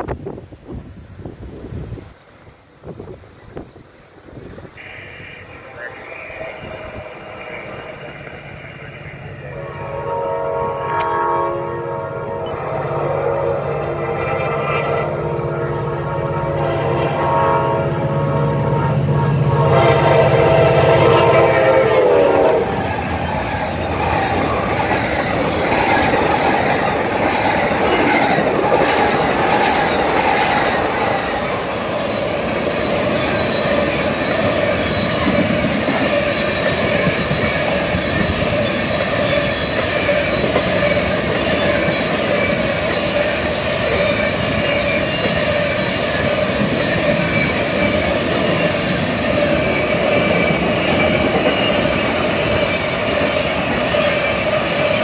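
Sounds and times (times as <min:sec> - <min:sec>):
train rumbling and clattering: 0:00.0 - 0:55.0
train horn: 0:04.8 - 0:23.1
train wheel squeal: 0:20.9 - 0:55.0.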